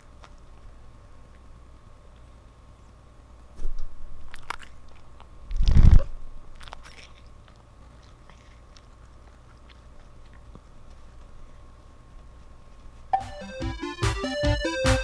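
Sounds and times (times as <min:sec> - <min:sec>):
cat licking and chewing: 0:04.2 - 0:05.8, 0:06.5 - 0:13.1.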